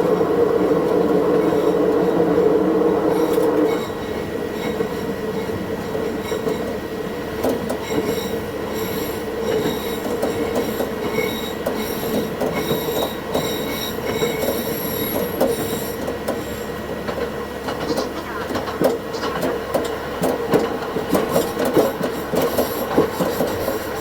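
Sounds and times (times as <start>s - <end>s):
railcar running along rails: 0.0s - 24.0s
wheels squealing against rails: 0.1s - 6.9s, 7.6s - 16.9s, 21.1s - 24.0s.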